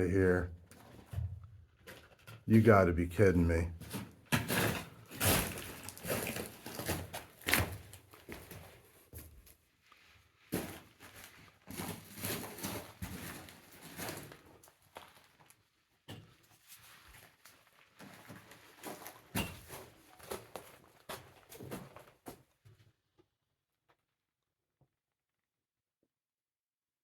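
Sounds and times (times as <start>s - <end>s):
footsteps crunching over rock: 5.1s - 9.3s.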